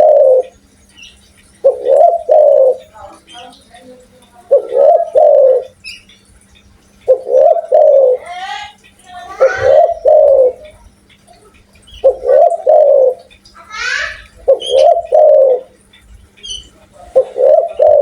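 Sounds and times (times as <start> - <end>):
dove cooing: 0.0 - 0.6, 1.6 - 3.6, 4.4 - 5.8, 7.1 - 10.9, 12.0 - 15.9, 16.5 - 18.0.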